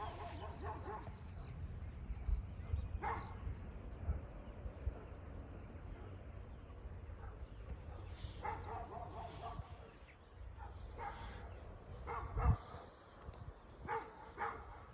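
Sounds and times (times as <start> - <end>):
dog barking: 0.0 - 1.2, 3.0 - 3.4, 7.2 - 9.8, 10.6 - 11.4, 12.0 - 13.0, 13.8 - 14.9.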